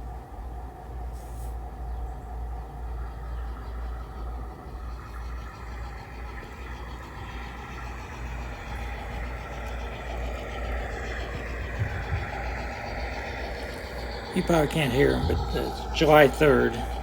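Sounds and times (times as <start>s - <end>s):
low rumble: 0.0s - 17.0s
model locomotive motor hum: 0.0s - 17.0s.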